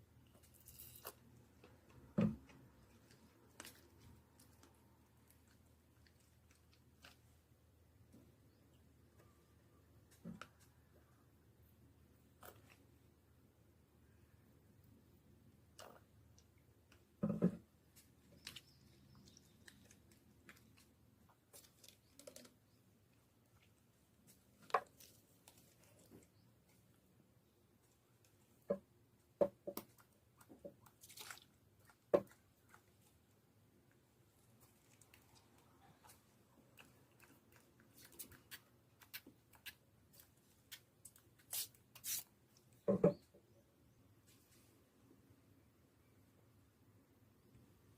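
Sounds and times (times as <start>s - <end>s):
sticky slime squishes: 29.8s - 42.6s.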